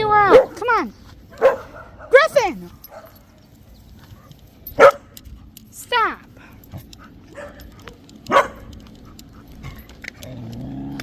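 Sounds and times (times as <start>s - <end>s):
dog barking: 0.2s - 0.6s, 1.3s - 2.2s, 4.8s - 5.1s, 7.3s - 8.7s.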